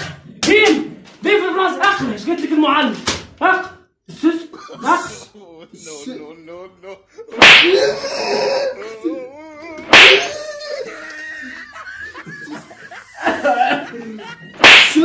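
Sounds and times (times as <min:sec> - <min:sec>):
people laughing: 0:04.6 - 0:15.0
wavering voices: 0:04.6 - 0:15.0
sharp slap: 0:07.4 - 0:07.8, 0:09.8 - 0:10.4, 0:14.6 - 0:15.0.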